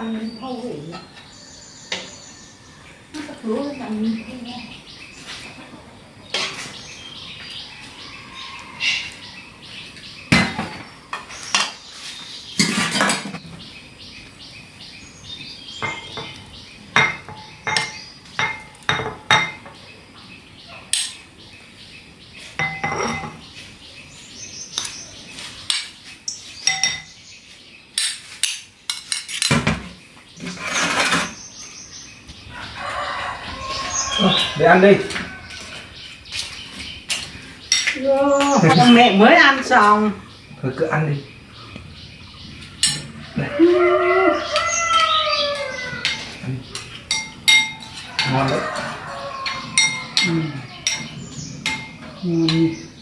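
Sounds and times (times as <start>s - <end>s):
bowls and spoons clinking: 15.8s - 16.4s, 17.0s - 19.7s, 22.6s - 23.4s, 26.6s - 27.2s, 42.8s - 43.2s, 46.0s - 52.6s.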